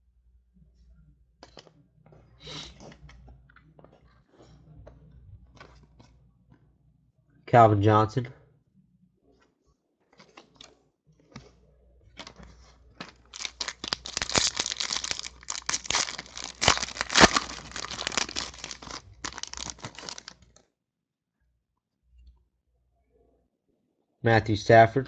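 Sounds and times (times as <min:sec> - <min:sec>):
foil wrapper tearing and crinkling: 0:13.0 - 0:20.4.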